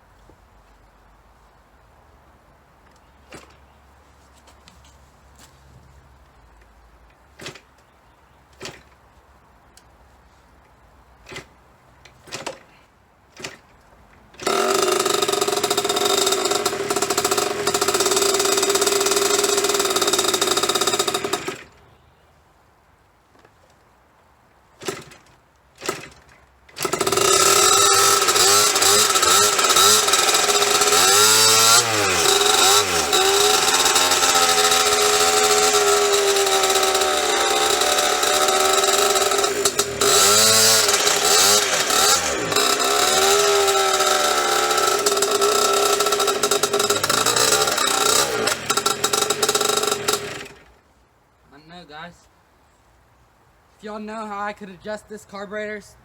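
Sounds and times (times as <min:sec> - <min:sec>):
two-stroke motorcycle engine: 0:14.3 - 0:21.8, 0:24.8 - 0:50.8.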